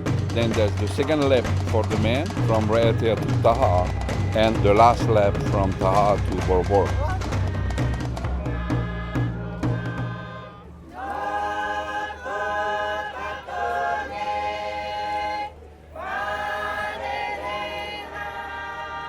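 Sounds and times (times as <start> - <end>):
drumbeat with deep bass: 0.0 - 10.3
choir singing held chords: 0.0 - 19.0.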